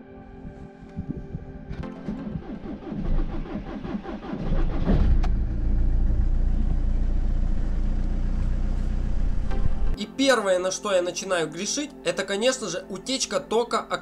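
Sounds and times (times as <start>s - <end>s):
starter cranking engine: 2.0s - 6.0s
car engine idling: 3.0s - 9.9s.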